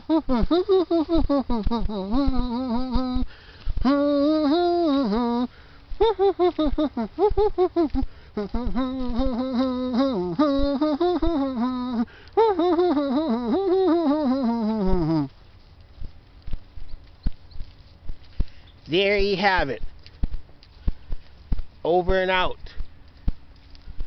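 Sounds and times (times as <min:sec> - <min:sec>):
person making sing-song syllables: 0:00.0 - 0:15.4.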